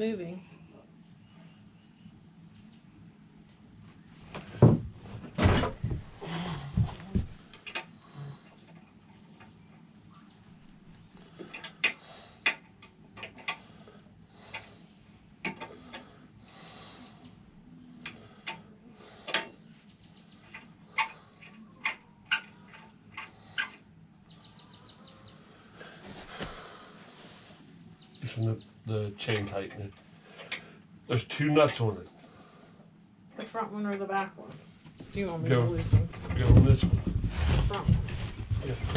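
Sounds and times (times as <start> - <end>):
rustling: 25.6 - 27.7, 34.6 - 38.9.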